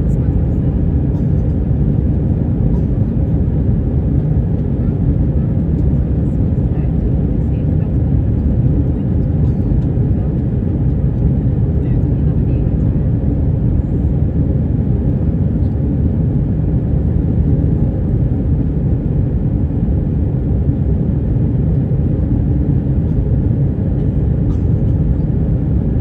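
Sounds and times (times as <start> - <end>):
aircraft cabin engine noise: 0.0 - 26.0.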